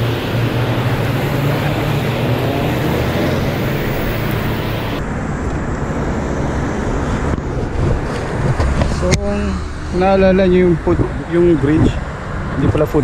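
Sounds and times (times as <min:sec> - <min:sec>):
traffic hiss: 0:00.0 - 0:05.0
road traffic rumble: 0:00.0 - 0:13.0.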